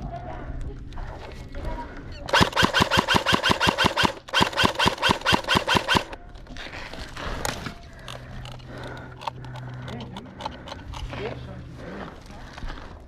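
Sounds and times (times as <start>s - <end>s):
airsoft gun firing full auto: 2.3s - 6.2s.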